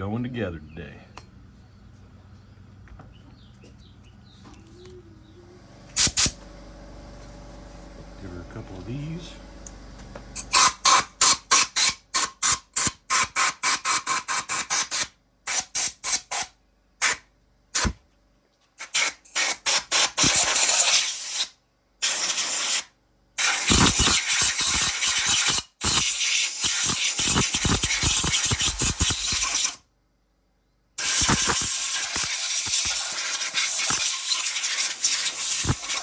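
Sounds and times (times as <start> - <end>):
hissing spray blasts: 6.0 - 6.4, 18.8 - 29.8, 31.0 - 36.0.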